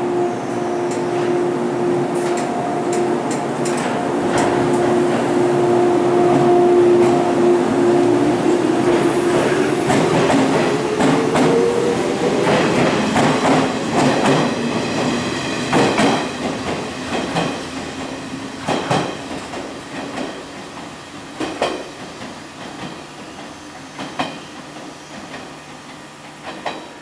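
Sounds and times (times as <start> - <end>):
train wheels clacking over rail joints: 2.2 - 5.2, 8.9 - 11.6, 12.3 - 27.0.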